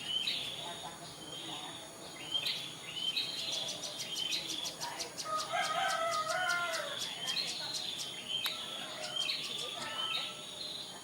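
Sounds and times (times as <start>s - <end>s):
bird chirps and ticks: 2.3s - 10.3s
rooster crowing: 5.3s - 7.0s.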